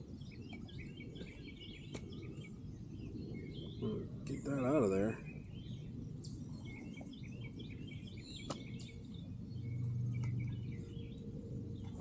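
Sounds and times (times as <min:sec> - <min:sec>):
songbirds chirping: 0:00.0 - 0:12.0
low rumble: 0:05.2 - 0:12.0.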